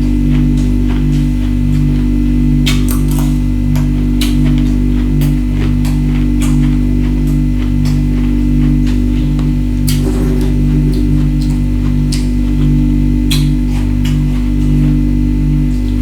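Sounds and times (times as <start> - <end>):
loud low hum: 9.1 - 13.3.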